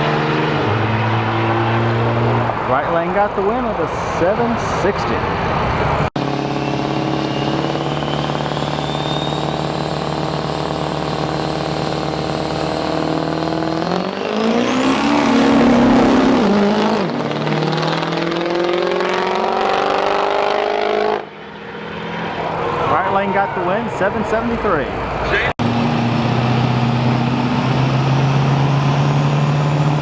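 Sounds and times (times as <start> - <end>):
truck engine revving: 0.0 - 30.0
turbo whistle: 6.4 - 10.9.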